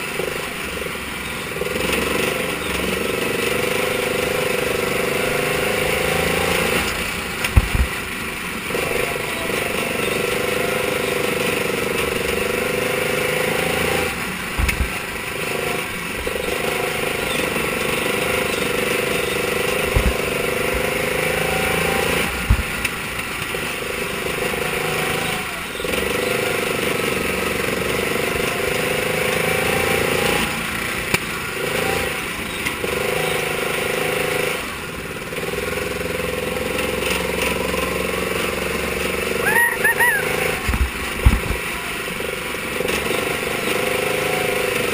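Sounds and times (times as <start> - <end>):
race car engine at high revs: 0.0 - 44.9
sharp low thumps: 7.6 - 8.0, 19.9 - 20.4, 40.7 - 41.6.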